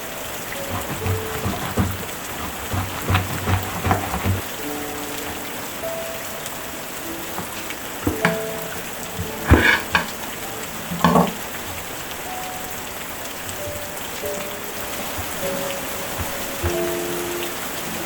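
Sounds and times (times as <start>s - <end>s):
steady rain falling: 0.0s - 18.0s
knocks and clatters: 0.6s - 4.4s, 7.3s - 11.9s.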